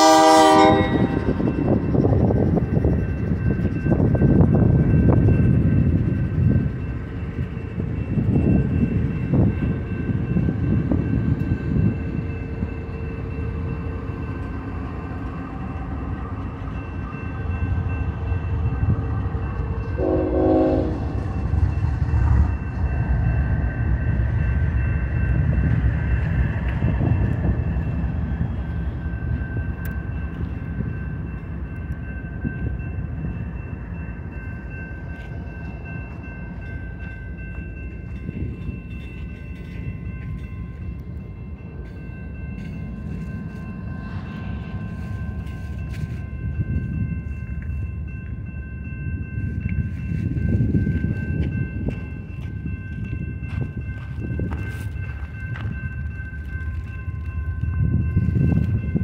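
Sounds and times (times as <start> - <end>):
train horn blast: 0.0 - 1.4, 20.0 - 21.2
freight train rumbling past: 0.0 - 59.0.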